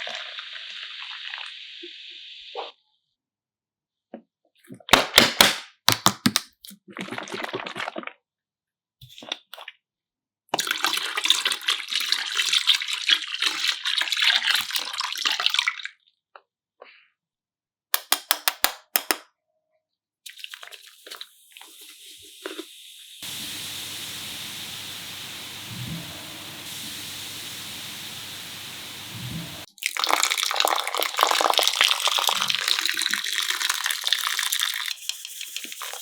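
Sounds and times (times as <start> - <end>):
liquid pouring and splashing: 6.7 - 8.2, 10.5 - 15.9, 20.3 - 36.0
sharp clicks or taps: 18.0 - 19.2.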